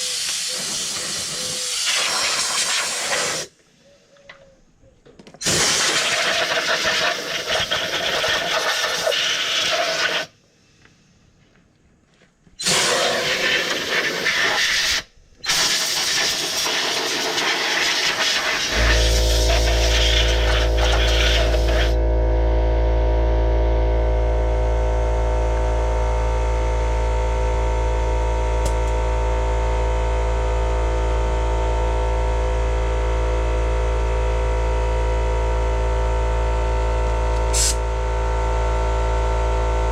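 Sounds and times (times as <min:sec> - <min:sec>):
loud hissing bursts: 0:00.0 - 0:03.6, 0:05.4 - 0:10.4, 0:12.6 - 0:22.0, 0:37.5 - 0:37.8
machine hum with fixed tones: 0:17.9 - 0:39.9.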